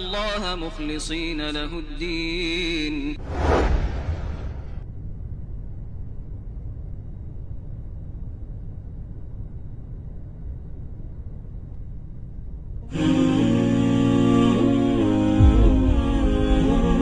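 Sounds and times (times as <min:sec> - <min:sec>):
jet engine drone in cabin: 0:03.3 - 0:13.8.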